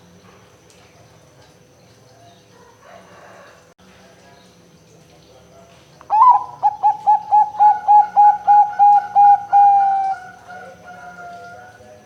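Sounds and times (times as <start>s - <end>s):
dove cooing: 6.1s - 11.8s.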